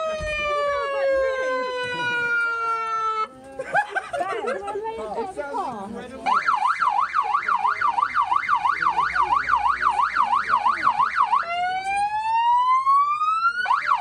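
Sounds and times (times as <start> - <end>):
police siren yelp and wail: 0.0 - 3.4, 6.3 - 14.0.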